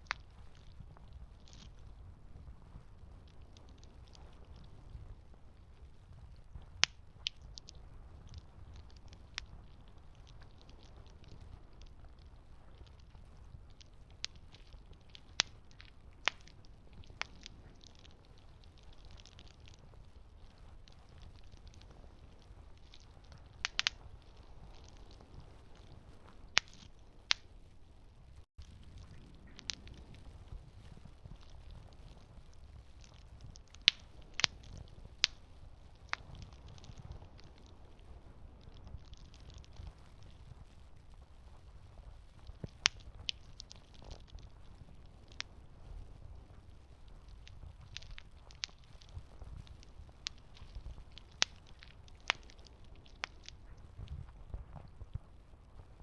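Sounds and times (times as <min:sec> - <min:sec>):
campfire wood crackling: 0:00.0 - 0:56.0
fire popping: 0:00.0 - 0:56.0.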